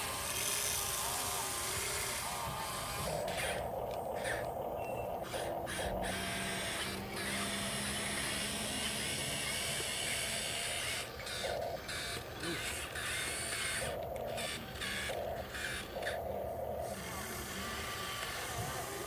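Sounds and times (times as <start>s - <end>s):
small electric motor whining: 0.0s - 19.0s.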